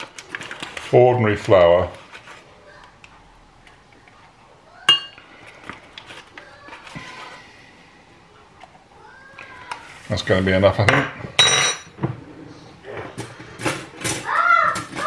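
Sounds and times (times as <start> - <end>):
spoon clinking on glass: 4.9 - 5.2.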